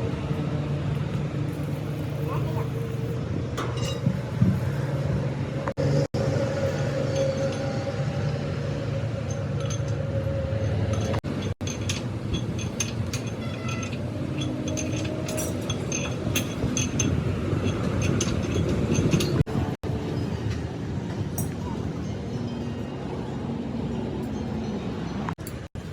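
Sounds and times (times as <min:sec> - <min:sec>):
metal clinks and taps: 0:10.9 - 0:19.5.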